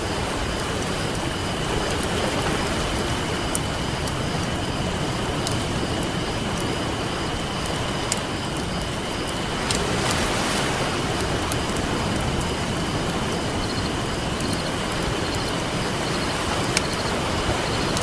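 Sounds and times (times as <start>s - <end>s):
campfire crackling and popping: 0.0s - 18.0s
ocean surf rushing: 0.0s - 18.0s.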